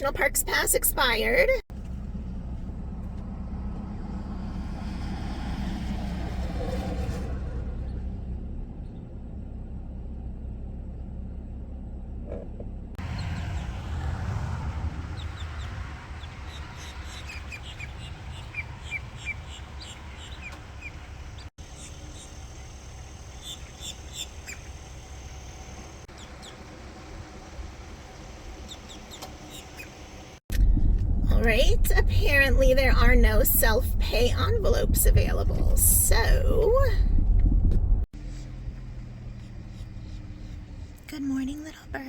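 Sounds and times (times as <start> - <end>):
steady low rumble: 0.0 - 29.0, 30.3 - 42.0
small birds chirping: 15.1 - 26.8, 28.2 - 30.2.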